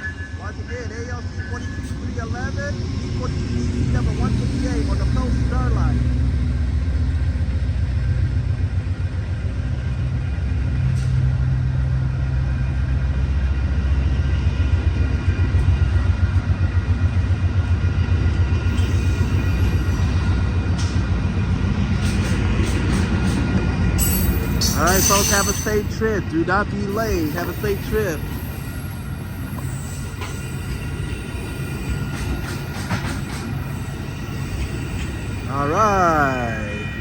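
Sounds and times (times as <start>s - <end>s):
passenger train passing: 0.0s - 37.0s
rhythmic clatter of wheels: 14.7s - 26.0s, 29.2s - 35.5s.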